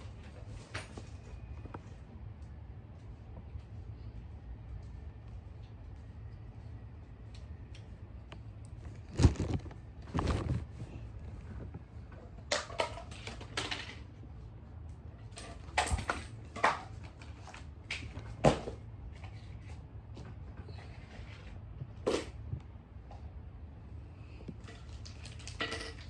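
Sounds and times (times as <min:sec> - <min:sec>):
low steady hum: 0:00.0 - 0:26.0
objects being handled: 0:08.8 - 0:11.7.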